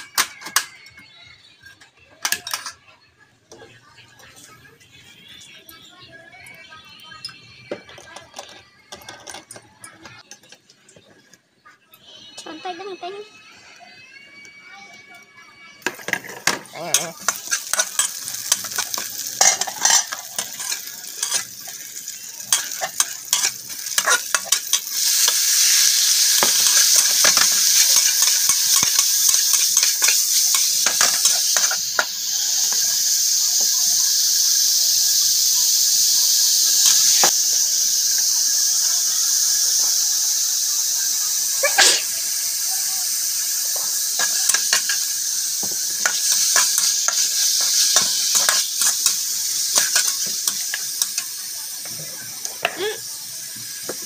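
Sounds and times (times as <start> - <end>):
food sizzling in a wok: 0.0 - 2.8, 3.5 - 10.4, 11.7 - 54.0
metal spatula scraping a wok: 16.0 - 21.8, 22.4 - 32.0, 44.2 - 51.3.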